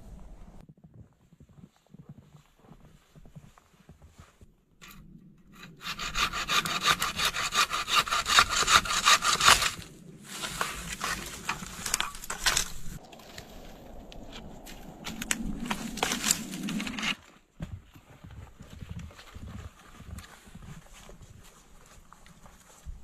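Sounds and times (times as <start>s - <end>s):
hand saw cutting wood: 4.8s - 13.0s.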